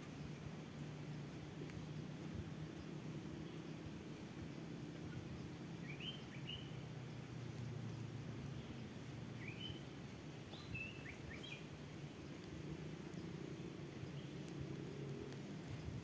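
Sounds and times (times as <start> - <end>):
small bird chirping: 4.4 - 8.8, 9.4 - 9.9, 10.5 - 16.0.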